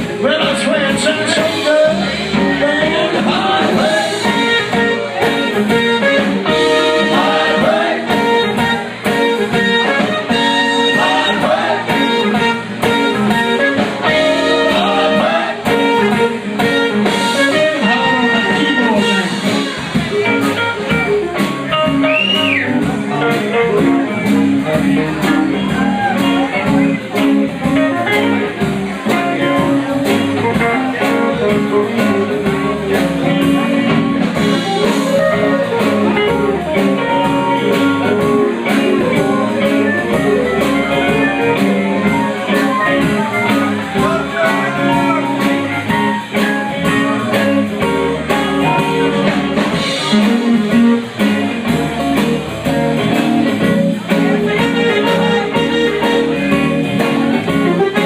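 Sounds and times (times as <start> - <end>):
blues-rock band playing: 0.0 - 58.0
electric guitar: 0.0 - 58.0
steady drum beat: 0.0 - 58.0.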